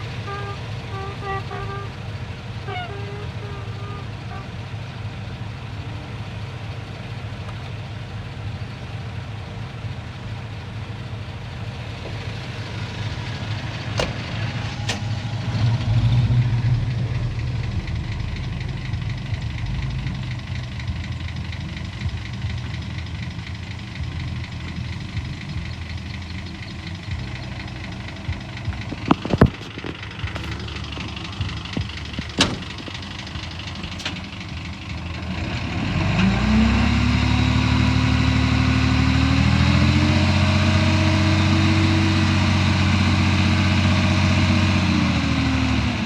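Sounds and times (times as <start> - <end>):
heavy diesel engine running: 0.0 - 46.0
sharp metallic clanks: 14.0 - 15.9, 28.7 - 34.6.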